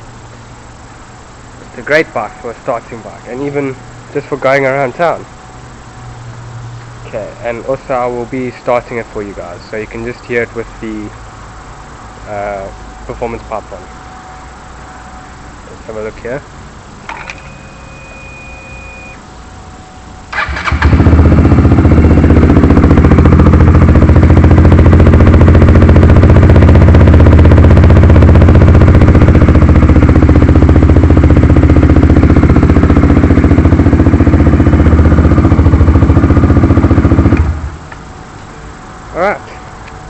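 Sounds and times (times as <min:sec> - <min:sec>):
electric starter cranking: 0:20.3 - 0:21.2
motorcycle engine idling loudly: 0:20.3 - 0:37.8.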